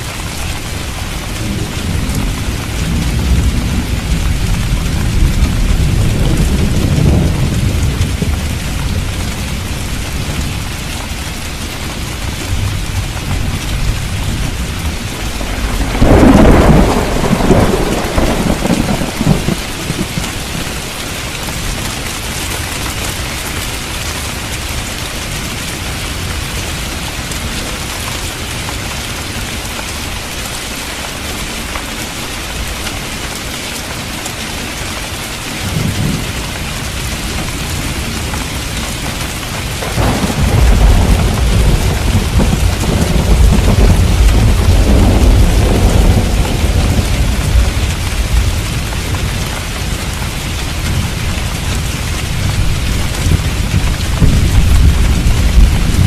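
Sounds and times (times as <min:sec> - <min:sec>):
heavy rain: 0:00.0 - 0:56.0
thunder rumbling: 0:00.2 - 0:23.3, 0:35.6 - 0:56.0.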